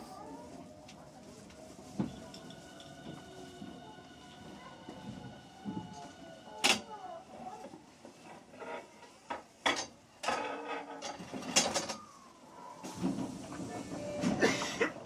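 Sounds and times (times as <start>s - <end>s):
train low running noise: 0.0s - 10.2s, 11.3s - 15.0s.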